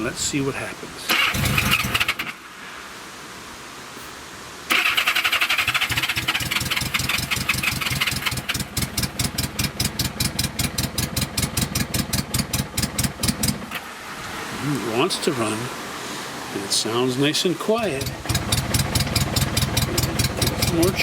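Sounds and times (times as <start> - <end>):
motorcycle engine cranking: 1.1 - 2.3, 4.7 - 13.8, 17.9 - 21.0.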